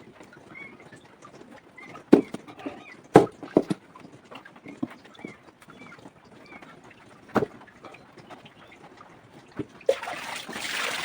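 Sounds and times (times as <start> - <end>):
running or splashing water: 7.7 - 11.0.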